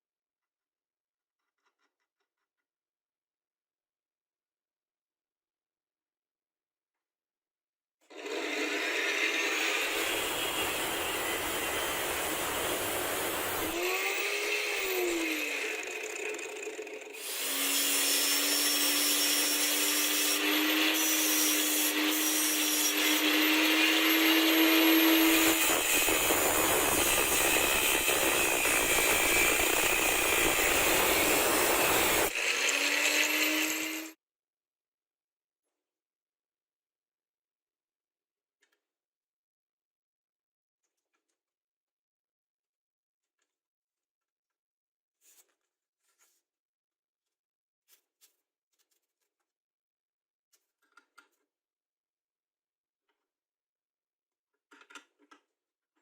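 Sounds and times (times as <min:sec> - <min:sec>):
power tool rasping: 0:08.1 - 0:34.2.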